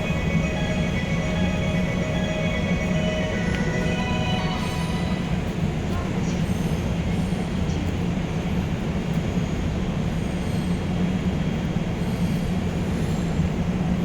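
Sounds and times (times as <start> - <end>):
electric train humming: 0.0 - 7.5.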